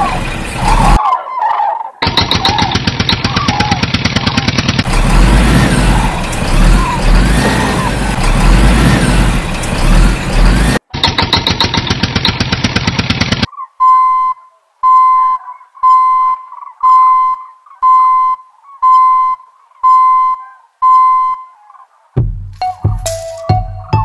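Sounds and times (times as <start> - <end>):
rapid engine-like rattle: 0.0 - 1.0, 2.0 - 13.5.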